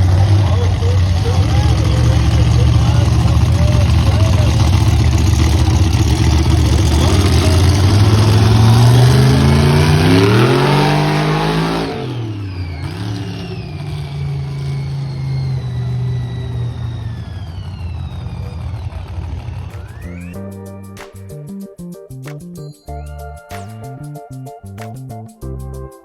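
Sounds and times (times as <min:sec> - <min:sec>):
truck engine revving: 0:00.0 - 0:20.4.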